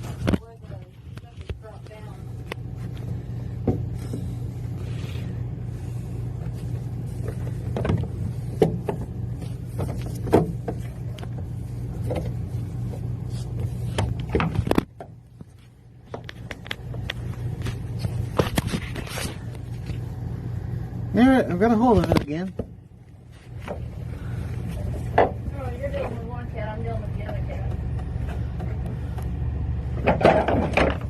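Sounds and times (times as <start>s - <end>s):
motor-like hum: 0.0s - 31.0s
knocks and bumps: 7.2s - 13.0s, 29.9s - 31.0s.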